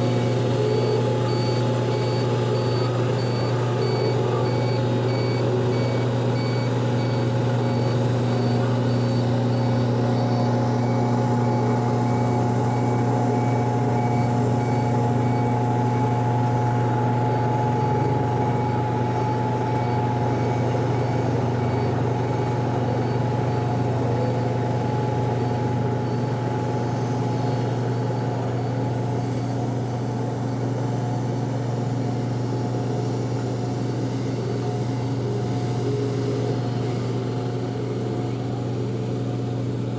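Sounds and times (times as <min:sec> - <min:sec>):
reversing alarm beeping: 0:00.0 - 0:29.6
dump truck engine running: 0:00.0 - 0:39.9.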